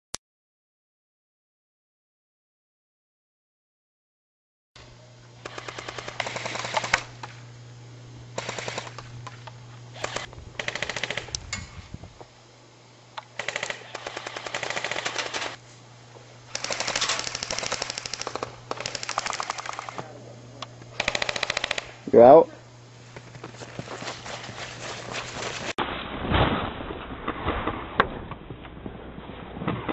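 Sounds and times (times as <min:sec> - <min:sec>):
airsoft rifles firing bursts: 0:05.4 - 0:07.3, 0:08.4 - 0:09.0, 0:10.0 - 0:11.4, 0:13.3 - 0:15.6, 0:16.5 - 0:20.1, 0:20.9 - 0:22.1.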